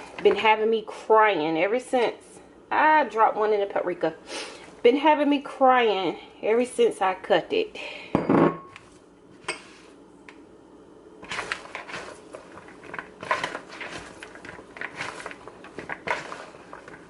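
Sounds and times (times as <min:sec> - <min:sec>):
vegetables tossed in a bowl: 0:11.2 - 0:17.0.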